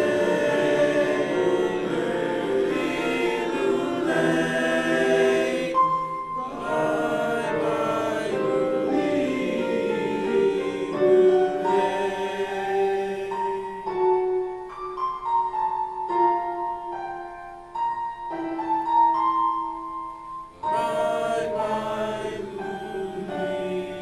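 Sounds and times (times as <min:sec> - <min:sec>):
choir singing: 0:00.0 - 0:14.6, 0:20.6 - 0:24.0
piano accompaniment: 0:00.0 - 0:24.0.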